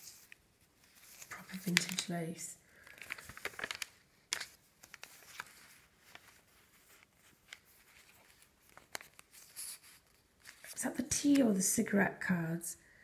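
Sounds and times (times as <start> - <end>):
paper pages rustling: 0.0 - 11.5.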